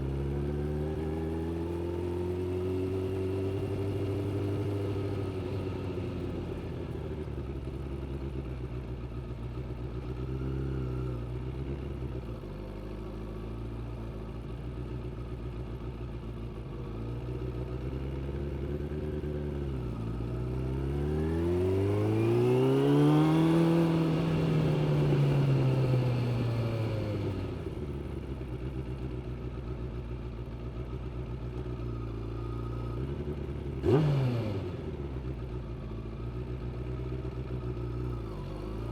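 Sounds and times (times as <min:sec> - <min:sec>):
motorcycle engine revving: 0:00.0 - 0:08.0, 0:16.9 - 0:29.9, 0:31.0 - 0:38.9.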